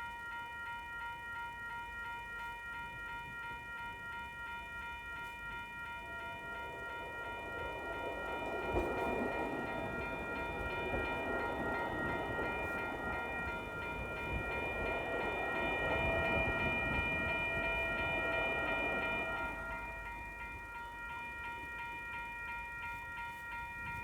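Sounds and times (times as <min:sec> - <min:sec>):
crossing warning bells ringing: 0:00.0 - 0:24.0
train rumbling past: 0:04.6 - 0:22.3.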